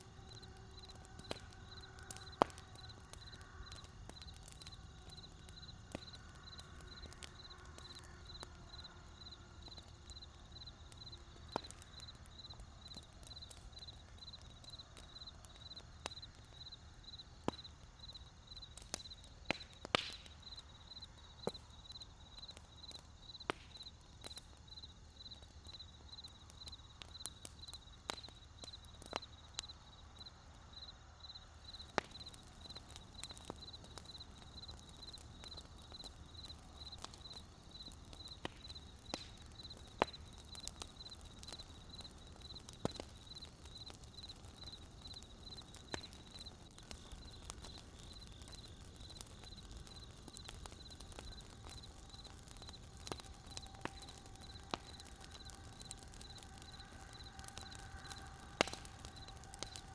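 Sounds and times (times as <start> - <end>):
pulsing insect chirp: 0.0 - 19.2, 20.4 - 24.0, 24.7 - 59.9
wood fire crackling: 0.0 - 59.9.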